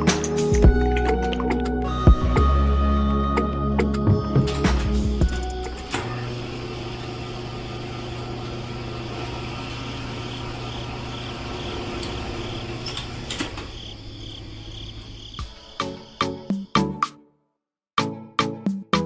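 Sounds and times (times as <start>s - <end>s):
small motor humming: 5.3s - 13.3s.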